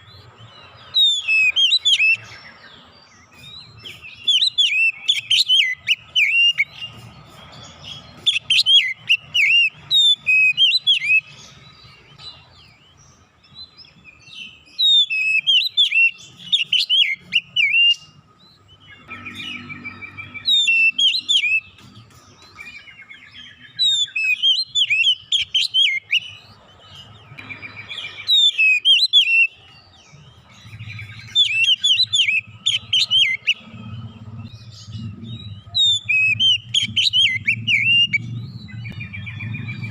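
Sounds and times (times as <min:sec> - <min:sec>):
bird singing whistled phrases: 0:00.9 - 0:02.6, 0:03.3 - 0:07.0, 0:07.9 - 0:11.4, 0:14.4 - 0:18.2, 0:18.9 - 0:21.8, 0:22.5 - 0:26.4, 0:27.4 - 0:29.7, 0:30.6 - 0:33.7, 0:34.8 - 0:39.9.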